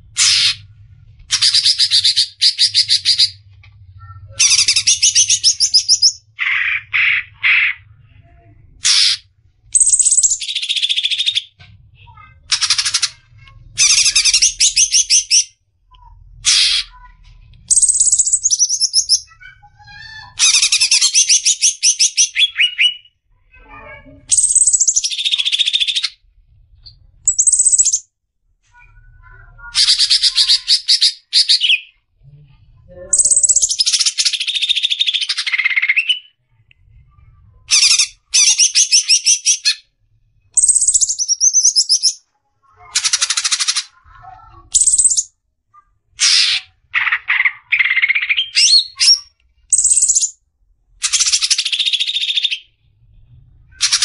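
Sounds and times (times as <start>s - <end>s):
bird chattering trills: 24.3s - 26.2s, 27.3s - 28.0s, 33.1s - 36.2s, 40.6s - 42.2s, 44.6s - 45.3s, 46.2s - 50.4s.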